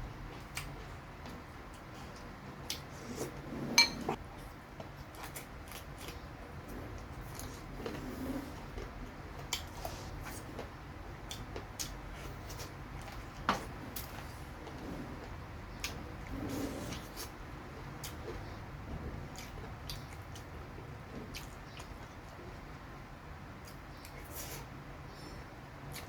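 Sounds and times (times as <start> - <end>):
soft chewing: 0.2 - 22.8, 23.5 - 26.0
utensils tapping on dish: 3.8 - 4.2.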